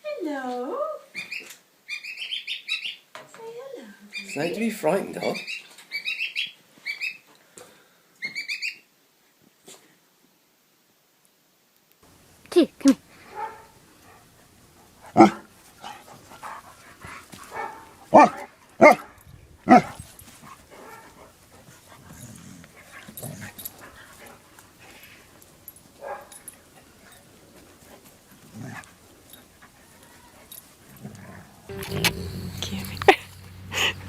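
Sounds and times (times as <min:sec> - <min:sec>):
dog barking: 0:13.2 - 0:14.2, 0:15.1 - 0:16.0, 0:17.5 - 0:20.0, 0:20.8 - 0:21.2, 0:26.0 - 0:26.4.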